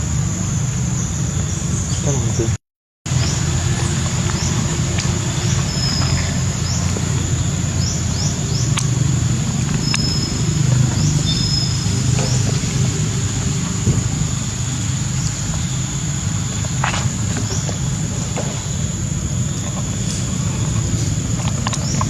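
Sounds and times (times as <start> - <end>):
steady low rumble: 0.0 - 22.0
high falling chirps: 3.1 - 20.1
high insect drone: 3.1 - 22.0.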